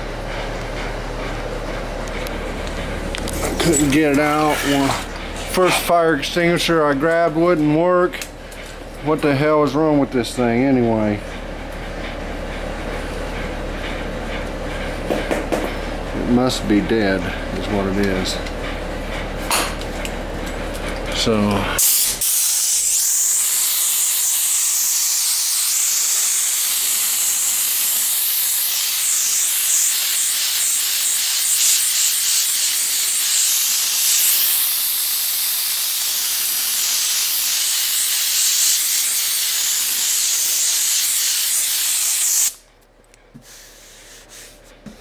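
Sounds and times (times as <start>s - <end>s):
fire extinguisher hissing: 21.8s - 42.6s, 43.4s - 44.6s.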